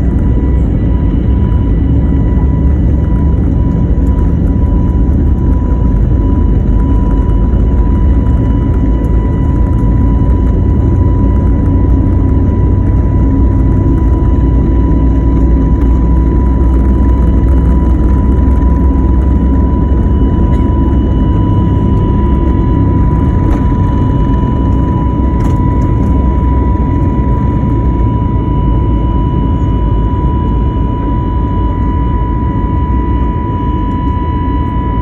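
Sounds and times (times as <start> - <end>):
high engine whine: 0.0 - 35.0
jet engines rumbling: 0.0 - 35.0.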